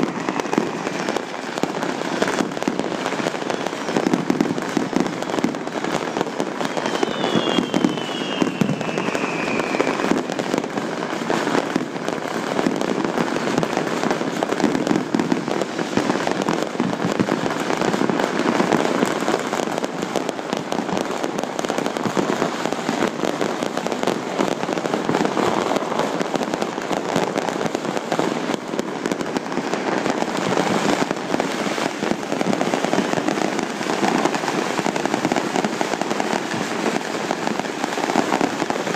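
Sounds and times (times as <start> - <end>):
fireworks crackling: 0.0 - 38.9
falling whistle: 6.7 - 10.1.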